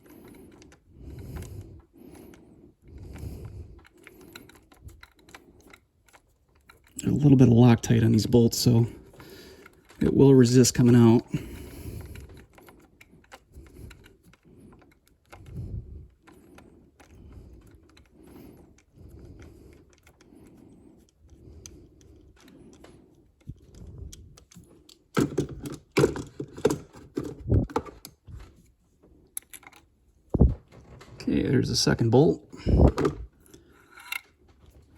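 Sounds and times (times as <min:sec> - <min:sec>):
metal clicks and clinks: 0:33.0 - 0:34.4.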